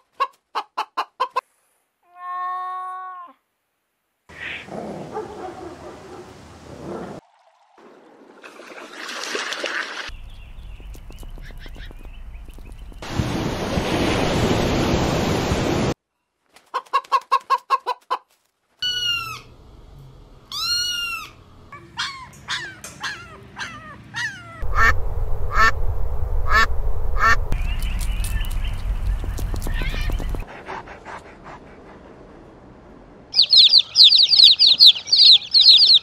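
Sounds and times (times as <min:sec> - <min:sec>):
kitten meowing: 0:20.5 - 0:21.3
sharp animal calls: 0:20.5 - 0:25.8, 0:26.5 - 0:30.8, 0:33.4 - 0:36.0
rustling noise: 0:27.4 - 0:30.6.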